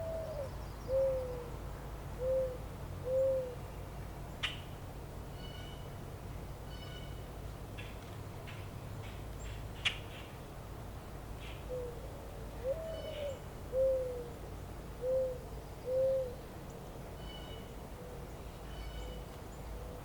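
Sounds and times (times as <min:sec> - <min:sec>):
bird hooting: 0:00.0 - 0:01.5, 0:02.2 - 0:03.6, 0:12.6 - 0:14.3, 0:15.0 - 0:16.4.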